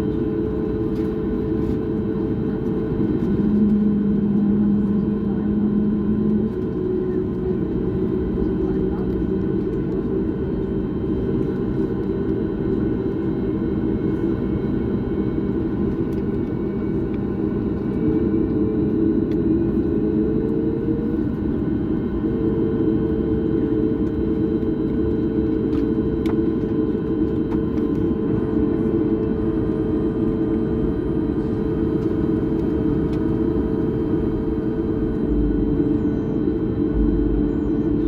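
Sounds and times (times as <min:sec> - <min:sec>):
airliner cabin engine rumble: 0:00.0 - 0:38.0
humming tone: 0:29.3 - 0:38.0.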